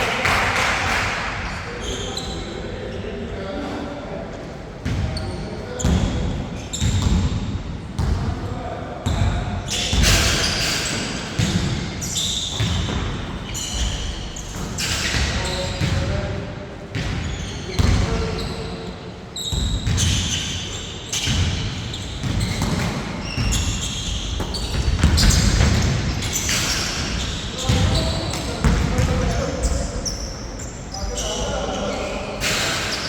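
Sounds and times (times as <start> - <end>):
players' voices: 0.0 - 33.0
shoe squeaks: 1.6 - 3.0, 5.1 - 7.3, 9.7 - 16.0, 17.2 - 33.0
basketball bouncing: 22.2 - 26.4, 27.7 - 29.4.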